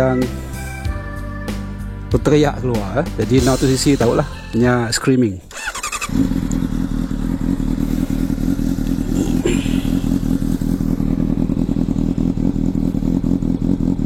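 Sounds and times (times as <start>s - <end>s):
motorcycle engine idling: 5.5s - 14.0s.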